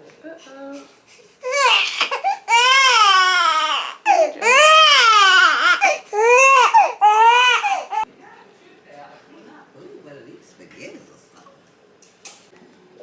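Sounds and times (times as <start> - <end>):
newborn baby crying: 1.4 - 8.1.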